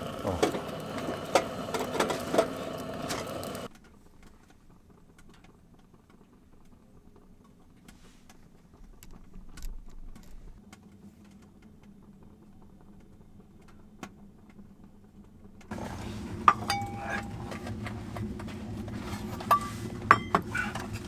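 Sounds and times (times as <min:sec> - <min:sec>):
metal cookware clinking: 0:00.0 - 0:03.7, 0:15.7 - 0:21.0
short metallic ring: 0:16.5 - 0:17.5.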